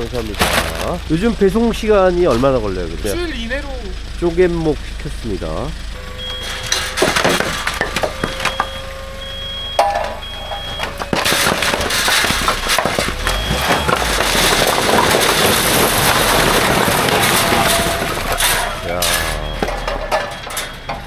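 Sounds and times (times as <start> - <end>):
logs sliding and clattering: 0.0 - 1.1, 6.1 - 8.9, 9.8 - 21.0
dump truck mechanical whine: 0.0 - 21.0
high warning beeps: 5.8 - 21.0.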